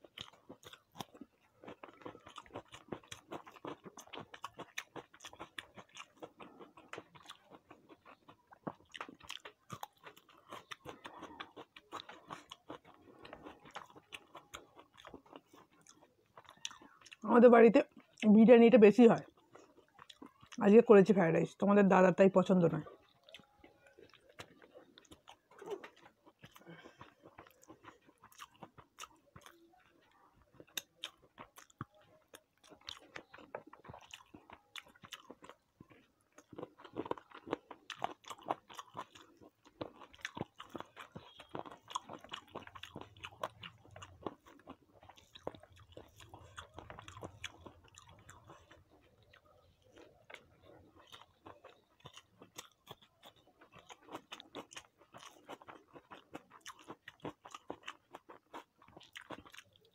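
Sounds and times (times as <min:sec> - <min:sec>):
person chewing food: 0:00.0 - 0:18.4, 0:19.0 - 0:20.9, 0:22.4 - 0:59.9.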